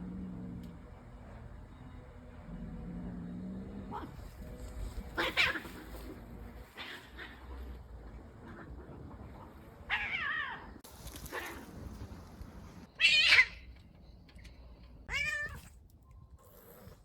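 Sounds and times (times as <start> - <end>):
cat meowing: 15.1 - 15.7.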